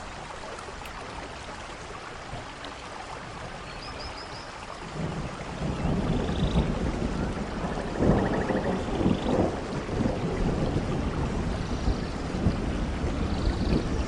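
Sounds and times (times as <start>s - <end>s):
steady rain falling: 0.0s - 14.0s
rumbling thunder: 4.9s - 14.0s.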